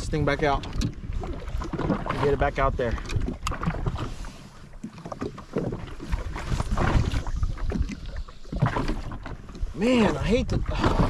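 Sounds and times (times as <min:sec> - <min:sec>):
water washing around jet ski: 0:00.0 - 0:11.0
wind buffeting microphone: 0:05.4 - 0:11.0.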